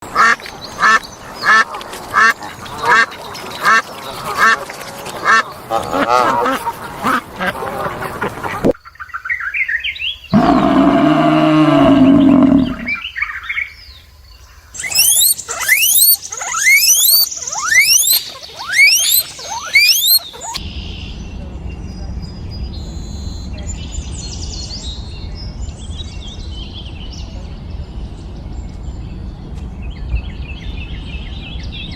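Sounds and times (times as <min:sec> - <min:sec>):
low drawn-out animal call: 0:10.4 - 0:13.1, 0:14.8 - 0:20.6
short evenly spaced animal calls: 0:10.4 - 0:13.2, 0:14.8 - 0:20.6
high falling whistled chirps: 0:14.8 - 0:20.6.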